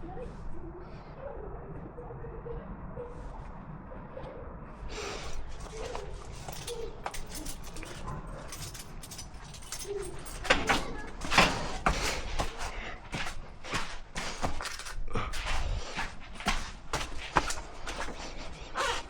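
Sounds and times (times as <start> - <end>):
sharp knocks and rattles: 5.5 - 19.0.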